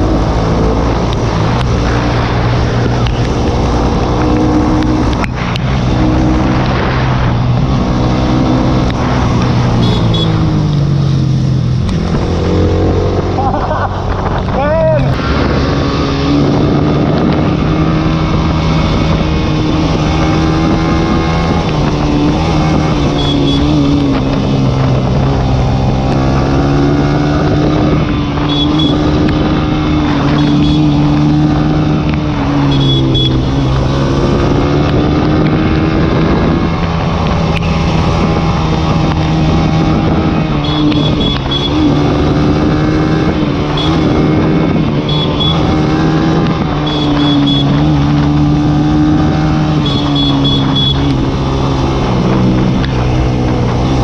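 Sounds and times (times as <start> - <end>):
motorcycle engine pulling hard: 0.0 - 54.0.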